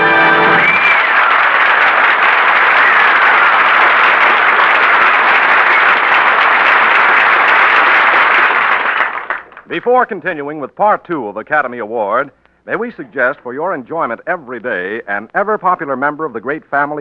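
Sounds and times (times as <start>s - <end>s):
organ music: 0.0s - 1.3s
audience applauding: 0.0s - 9.7s
short whistles: 0.6s - 1.2s.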